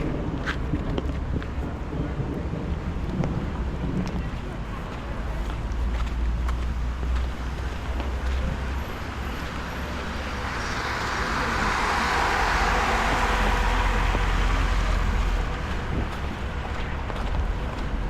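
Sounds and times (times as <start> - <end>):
steady low rumble: 0.0 - 18.0
car tyres hissing on wet street: 4.4 - 18.0.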